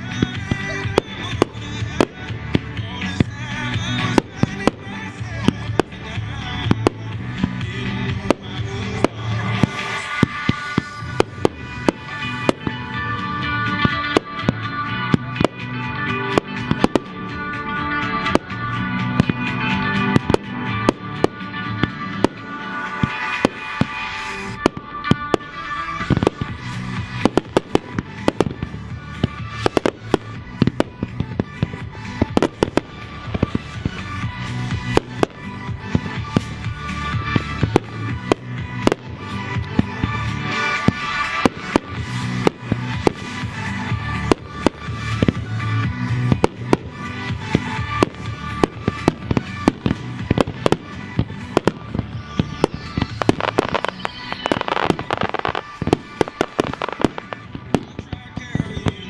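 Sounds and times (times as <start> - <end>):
fireworks banging: 0.0 - 59.0.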